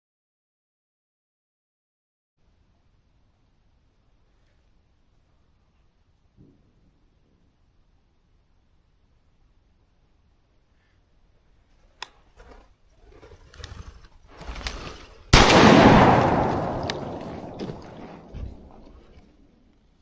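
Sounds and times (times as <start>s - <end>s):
rustling: 10.7s - 19.8s
loud bang with echo: 15.4s - 19.1s
clicks: 16.2s - 19.8s.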